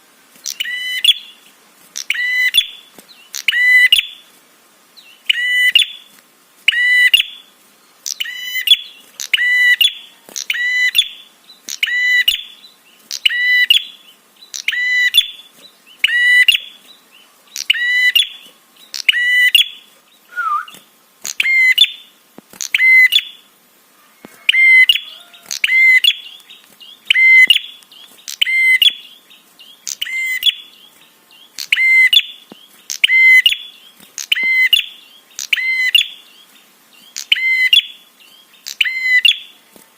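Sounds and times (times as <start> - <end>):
bird high sharp chips: 24.2 - 29.1, 29.8 - 36.2.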